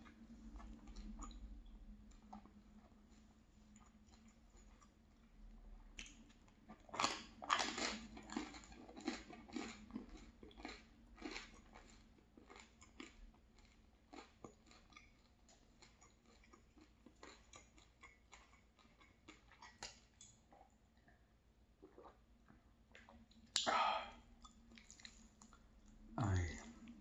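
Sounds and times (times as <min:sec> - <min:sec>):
wet chewing clicks: 0:00.0 - 0:02.9, 0:06.0 - 0:20.7, 0:24.4 - 0:27.0.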